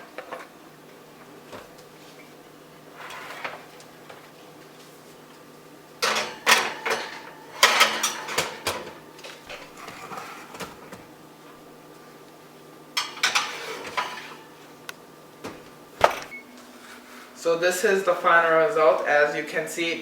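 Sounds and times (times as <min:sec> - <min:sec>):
kitchenware clattering: 0:06.0 - 0:11.0, 0:13.0 - 0:14.6.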